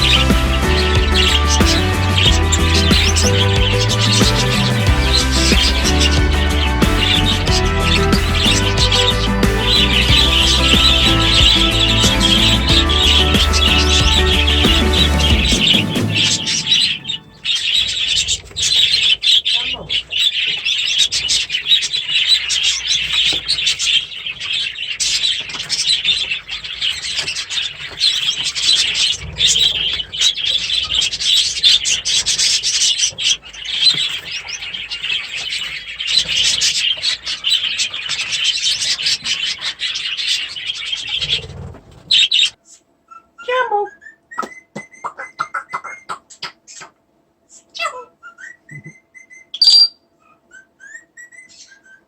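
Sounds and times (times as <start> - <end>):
cage birds chattering and chirping: 0.0 - 52.0
sliding whistled bird calls: 48.2 - 52.0.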